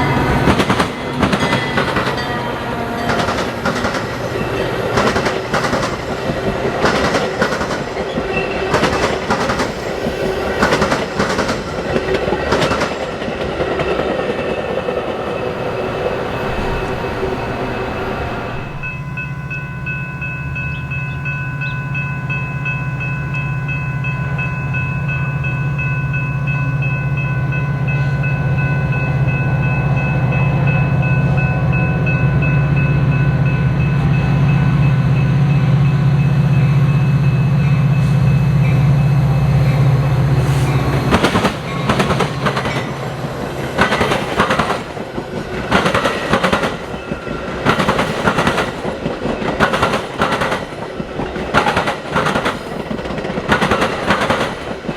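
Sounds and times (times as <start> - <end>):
train wheels clattering on track: 0.0 - 20.0, 39.6 - 54.9
locomotive engine drone: 14.8 - 43.9.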